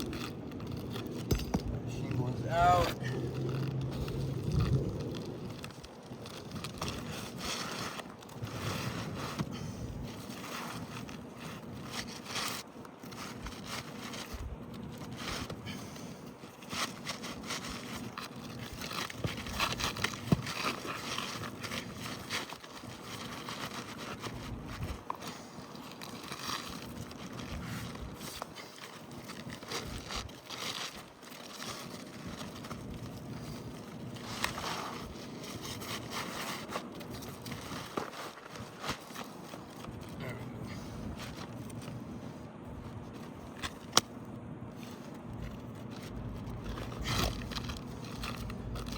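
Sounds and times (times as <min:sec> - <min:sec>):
roofing shingles scraping: 0:00.0 - 0:44.0.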